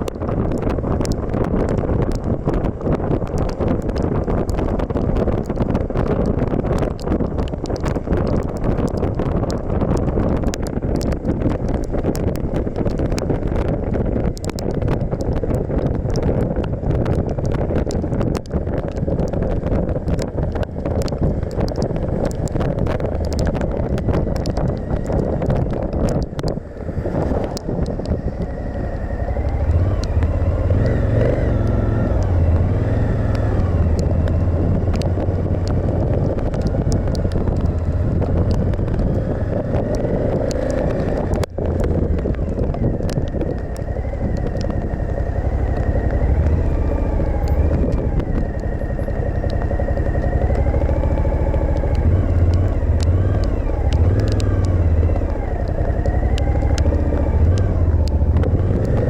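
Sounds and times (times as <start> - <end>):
wind rush: 0.0 - 59.0
motorcycle engine revving: 20.2 - 59.0.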